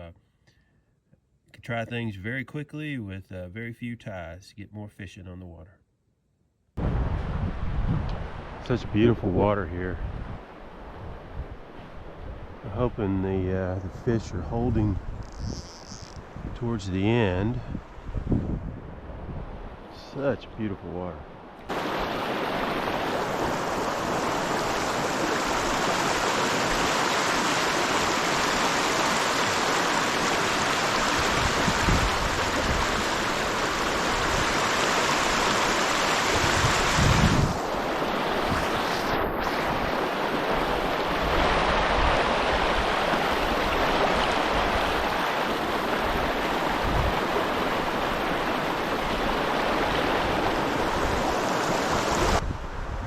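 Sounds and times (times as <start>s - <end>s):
stream flowing over rocks: 21.7s - 52.4s.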